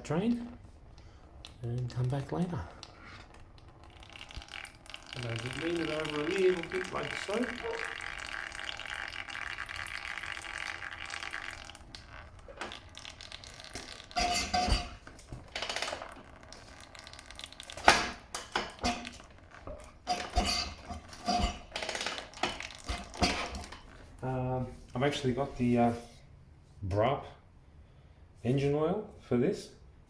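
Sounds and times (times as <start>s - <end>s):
oil trickling into drain pan: 2.9s - 24.1s.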